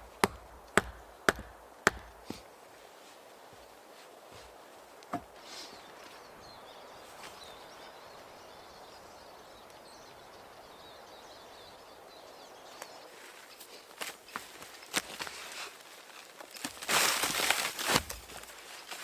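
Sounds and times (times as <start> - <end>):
steady outdoor hiss: 0.0 - 14.7
small birds chirping: 5.4 - 14.9.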